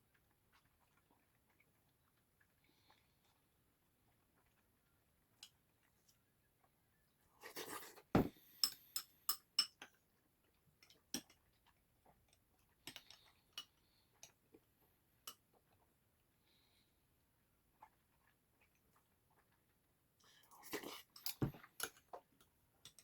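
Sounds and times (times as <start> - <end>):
thud: 8.2 - 8.4
utensils clinking against bowl: 20.7 - 22.0.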